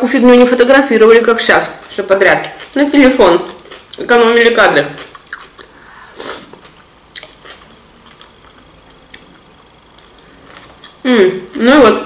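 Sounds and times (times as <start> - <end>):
person chewing food: 1.8 - 2.9, 5.0 - 11.0.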